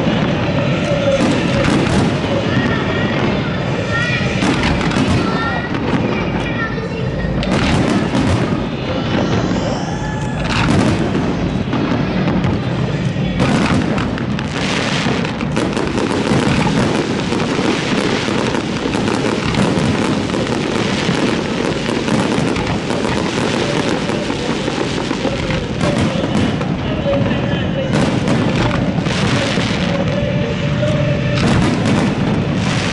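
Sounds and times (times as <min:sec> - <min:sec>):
fireworks bursts and booms: 0:00.0 - 0:32.9
rising firework whistle: 0:07.4 - 0:12.4.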